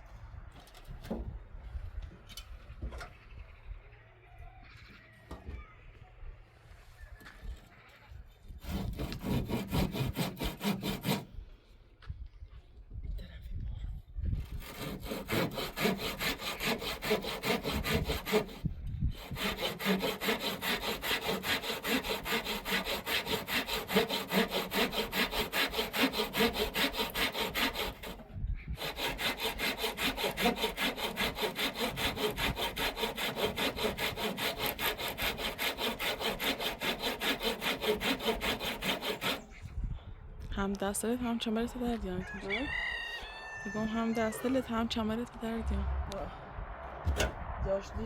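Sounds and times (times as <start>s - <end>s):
hand saw cutting wood: 8.6s - 11.3s, 14.4s - 39.6s.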